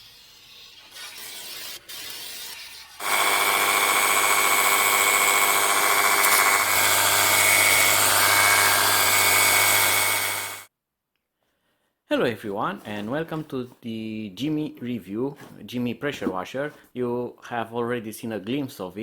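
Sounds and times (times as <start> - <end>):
water jet hissing: 0.0 - 10.7
pressure washer pump whine: 3.0 - 10.7.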